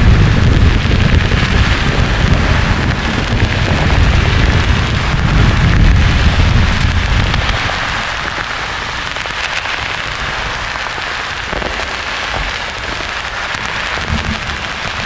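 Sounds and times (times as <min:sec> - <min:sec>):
thunder rumble: 0:00.0 - 0:09.4, 0:13.6 - 0:15.0
rain-like hiss: 0:00.0 - 0:15.0.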